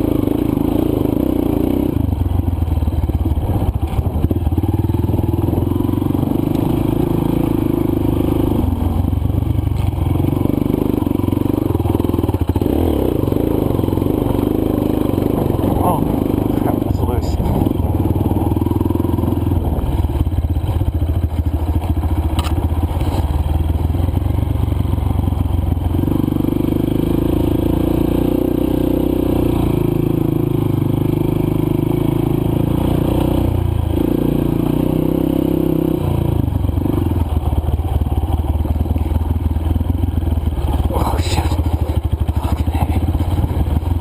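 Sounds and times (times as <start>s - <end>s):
dirt bike engine running: 0.0s - 44.0s
bike rattling and scraping: 12.3s - 23.7s, 40.4s - 44.0s.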